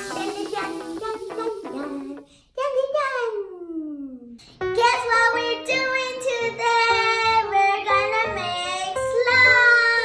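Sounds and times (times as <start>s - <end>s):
high voice singing: 0.0s - 2.4s
instrumental music: 0.0s - 2.4s.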